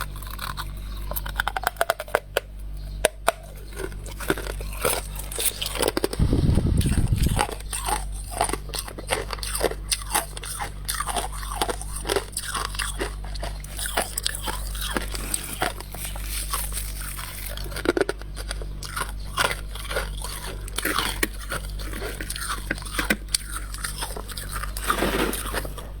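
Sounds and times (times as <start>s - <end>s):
crisp crunches of chewing frost: 0.0s - 26.0s.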